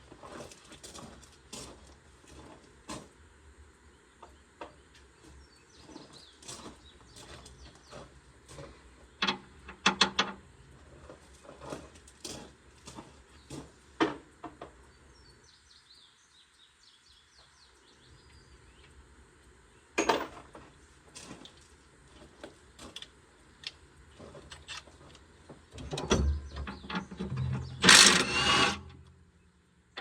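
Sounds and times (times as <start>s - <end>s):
hand tools and metal parts clinking: 25.8s - 29.0s.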